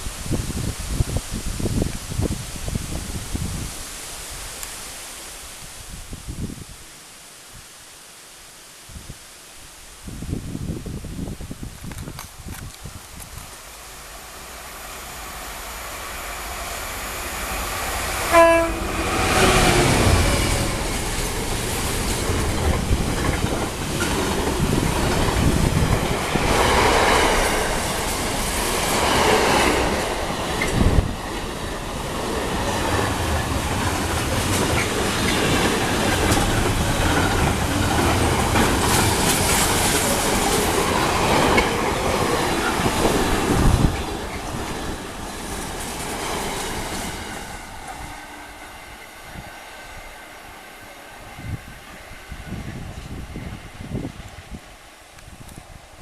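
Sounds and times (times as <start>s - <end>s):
train wheel and rail noise: 10.2s - 56.0s
train horn blast: 18.1s - 20.9s.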